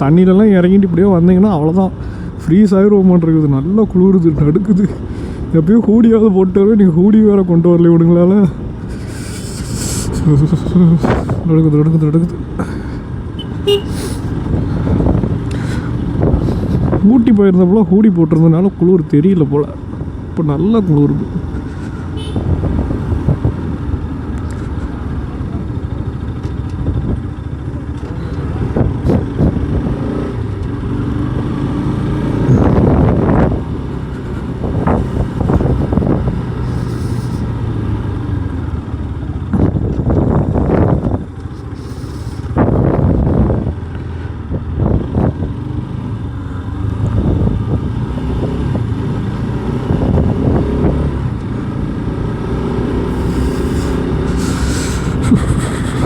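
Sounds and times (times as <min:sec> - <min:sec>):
motorcycle engine running: 0:04.0 - 0:56.0
wind noise rushing: 0:08.8 - 0:11.5, 0:14.1 - 0:17.1, 0:22.2 - 0:23.9, 0:32.4 - 0:37.4, 0:39.5 - 0:43.8.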